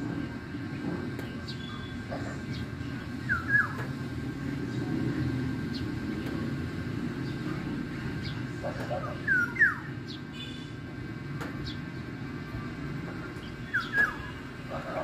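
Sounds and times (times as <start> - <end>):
bird chirping: 13.4 - 14.4.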